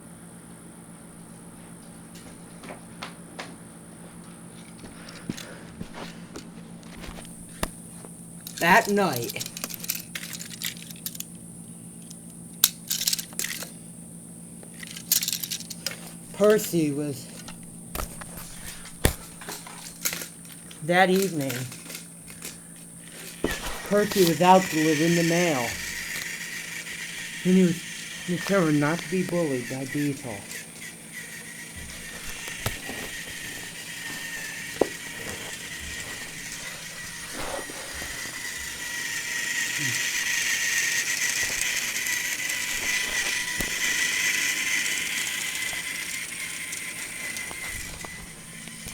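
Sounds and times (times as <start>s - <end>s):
steady low hum: 0.0s - 48.9s
toy train motor whine: 0.0s - 48.9s
crackly rustling: 0.8s - 48.9s
hard plastic pieces clicking: 8.4s - 11.4s, 12.0s - 13.8s, 14.6s - 48.9s.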